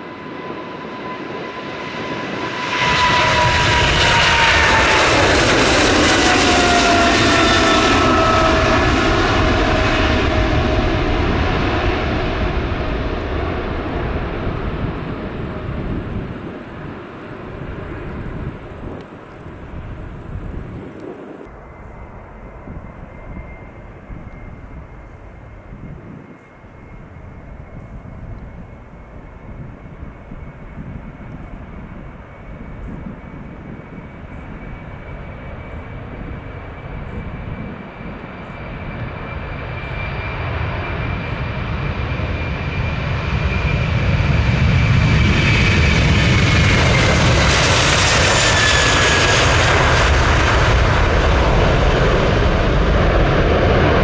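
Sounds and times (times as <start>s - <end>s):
jet airliner passing: 0.0s - 54.0s.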